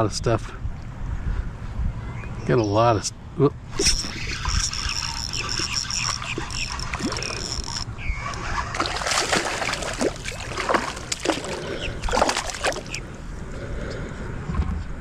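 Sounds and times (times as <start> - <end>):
sharp water splashes: 3.7 - 13.2
water sloshing around kayak: 3.7 - 13.4.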